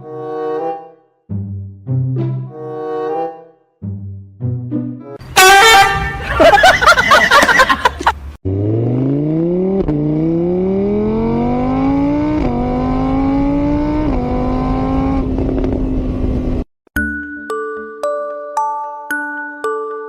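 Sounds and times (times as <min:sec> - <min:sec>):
car engine accelerating: 0:07.9 - 0:16.7
chiming music box tune: 0:17.0 - 0:20.0.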